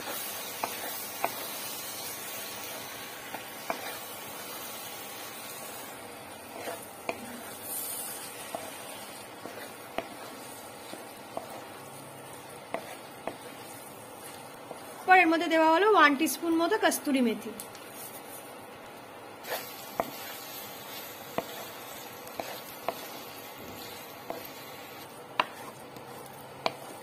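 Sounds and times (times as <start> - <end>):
vegetables sizzling in a pan: 0.0 - 27.0
wooden spatula tapping a pan: 0.6 - 1.5, 7.0 - 7.3, 25.4 - 25.7.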